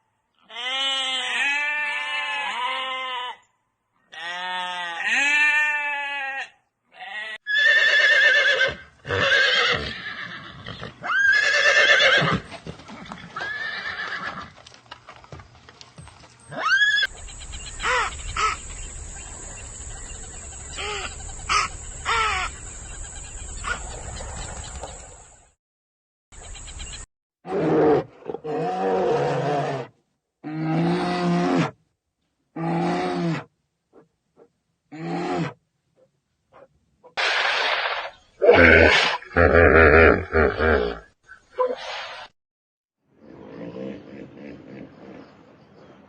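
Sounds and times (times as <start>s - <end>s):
horse whinnies: 7.4s - 14.6s
high gliding animal calls: 16.5s - 24.9s
deeper repeated animal calls: 20.1s - 23.8s.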